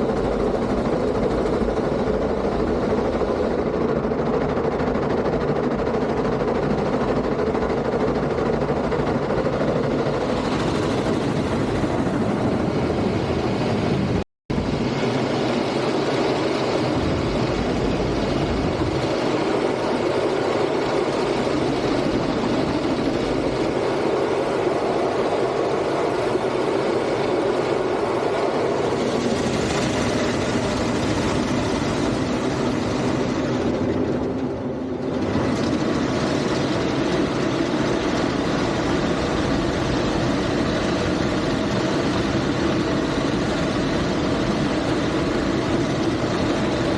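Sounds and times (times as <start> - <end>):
car wash machinery running: 12.6 - 46.9.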